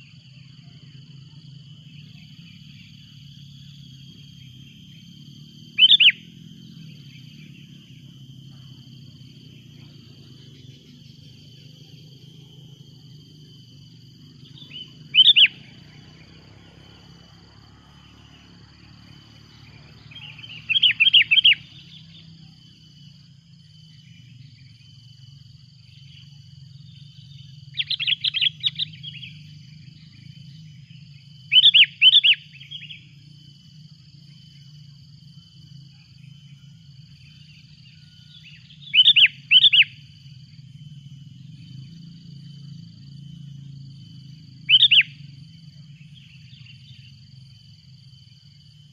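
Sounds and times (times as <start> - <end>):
bird chattering calls: 5.8 - 6.3, 14.5 - 15.7, 20.1 - 21.9, 38.8 - 39.9, 44.7 - 45.1.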